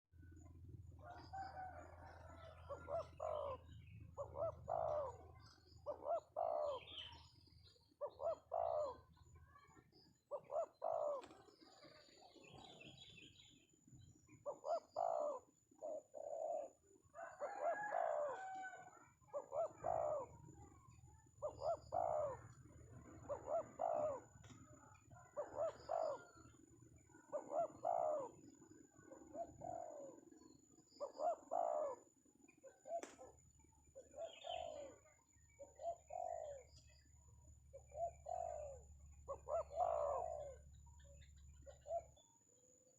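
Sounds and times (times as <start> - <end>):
dove cooing: 0.3 - 13.4, 14.2 - 42.3.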